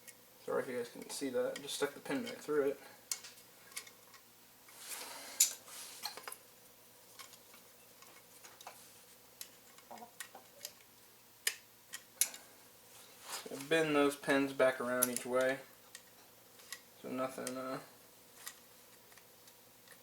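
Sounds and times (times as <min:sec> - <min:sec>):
short rustle: 0:12.9 - 0:13.8.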